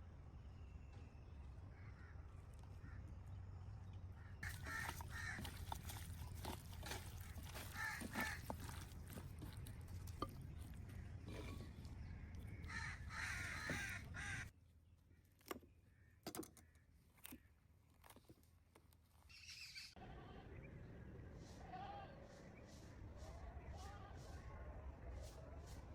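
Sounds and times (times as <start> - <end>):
crows cawing: 4.2 - 6.0, 6.9 - 8.9, 12.2 - 14.5.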